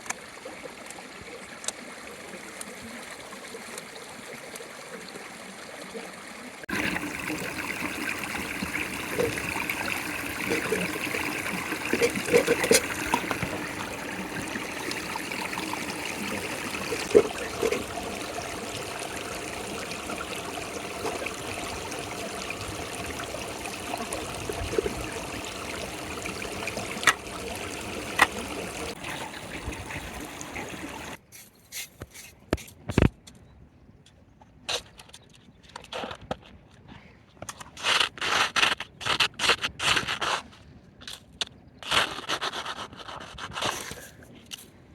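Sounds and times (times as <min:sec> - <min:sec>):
water running and trickling: 0:00.0 - 0:31.2.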